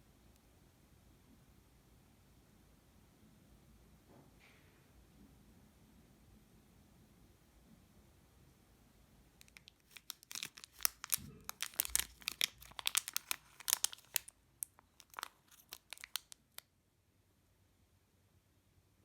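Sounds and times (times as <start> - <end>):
material crinkling and tearing: 9.4 - 16.6.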